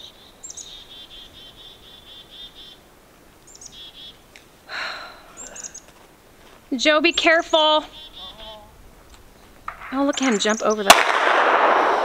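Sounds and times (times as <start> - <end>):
small bird chirping: 0.0 - 2.8, 3.4 - 4.2, 5.4 - 6.0, 6.8 - 10.9.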